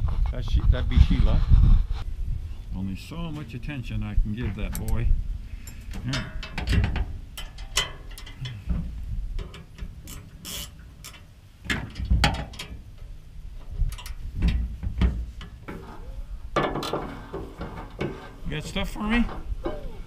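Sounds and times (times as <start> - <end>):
metal knocks: 5.9 - 9.9, 11.1 - 12.8, 13.8 - 19.9.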